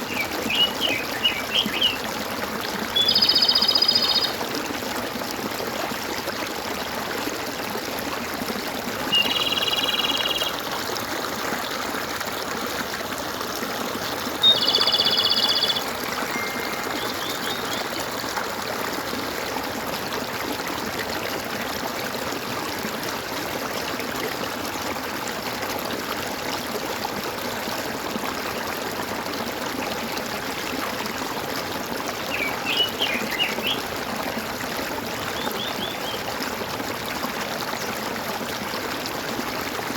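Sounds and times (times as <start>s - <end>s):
stream trickling and gurgling: 0.0s - 39.9s
bird chirps: 3.0s - 4.4s, 9.2s - 10.5s, 14.4s - 17.9s, 32.3s - 33.8s
bird buzzy trills: 14.4s - 17.9s.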